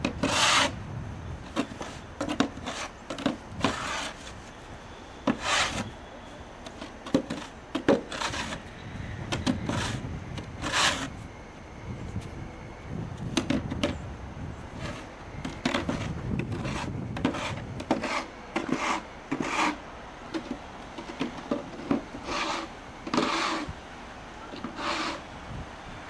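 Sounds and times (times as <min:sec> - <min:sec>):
scraping strokes: 0:00.1 - 0:00.8, 0:01.5 - 0:04.6, 0:05.2 - 0:08.7, 0:09.3 - 0:11.2, 0:14.7 - 0:19.8, 0:20.4 - 0:23.7, 0:24.5 - 0:25.3.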